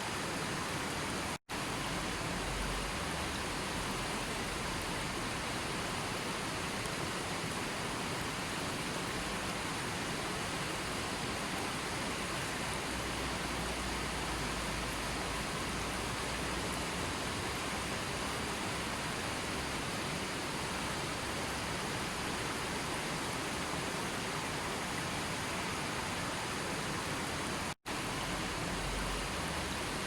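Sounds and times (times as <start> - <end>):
water rushing: 0.0 - 30.0.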